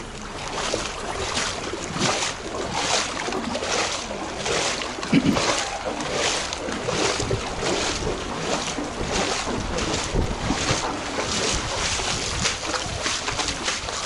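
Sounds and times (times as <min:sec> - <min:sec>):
floodwater splashing: 0:00.0 - 0:14.0
wind noise on microphone: 0:05.1 - 0:14.0.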